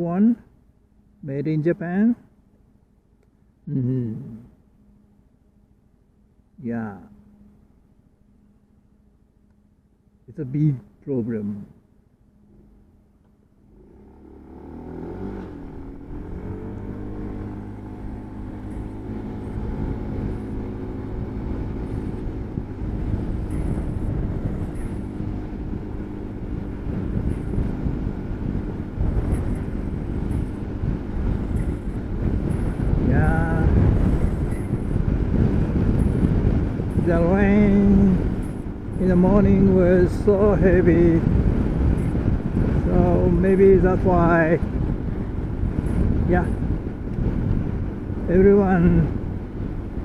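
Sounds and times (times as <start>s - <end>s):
wind and road noise: 0.0s - 50.0s
scooter engine pulling away: 13.6s - 43.0s.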